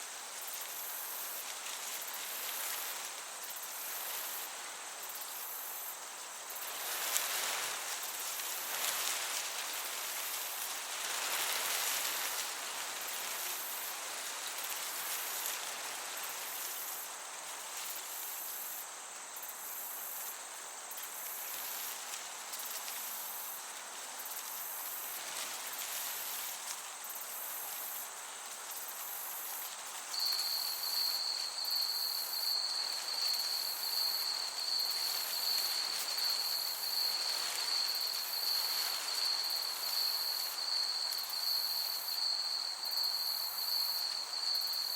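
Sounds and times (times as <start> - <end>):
gentle breeze: 0.0 - 44.9
insect chorus chirping: 0.0 - 44.9
high-pitched cricket trill: 0.4 - 44.9.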